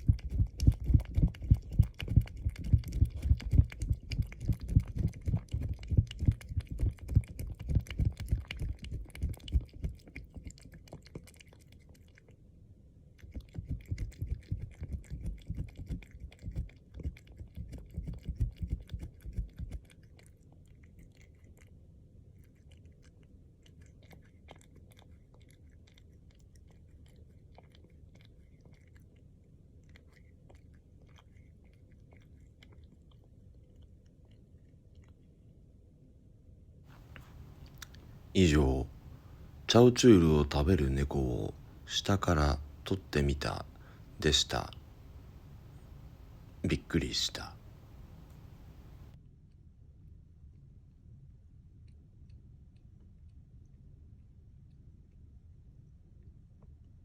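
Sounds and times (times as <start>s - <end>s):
cat licking wet lapping: 0.0s - 35.2s, 36.9s - 49.2s
faint scattered clicks: 37.0s - 38.3s.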